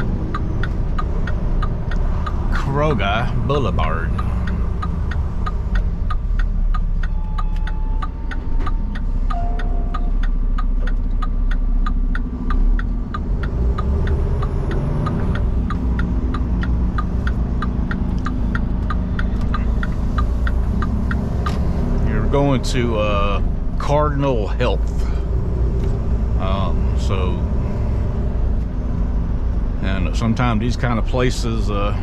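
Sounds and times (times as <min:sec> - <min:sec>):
turn signal clicking: 0:00.0 - 0:23.9
truck engine rumble: 0:00.0 - 0:32.0.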